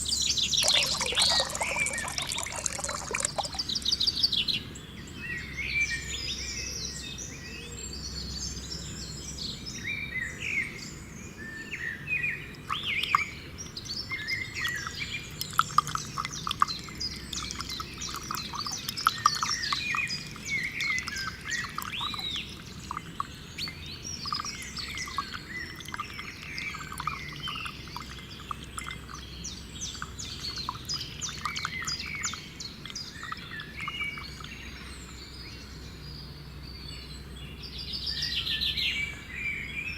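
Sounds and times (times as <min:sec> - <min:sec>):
birds chirping and calling: 0:12.0 - 0:35.8.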